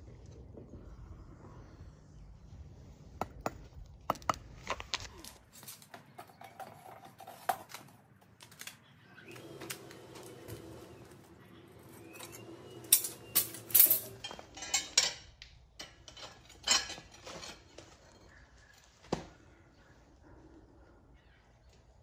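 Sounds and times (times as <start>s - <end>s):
metal tongs clanking: 12.2s - 17.8s.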